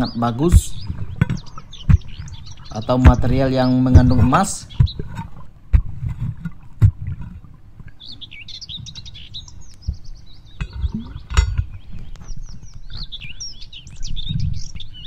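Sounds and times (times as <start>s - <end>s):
birds twittering: 0.0s - 15.0s.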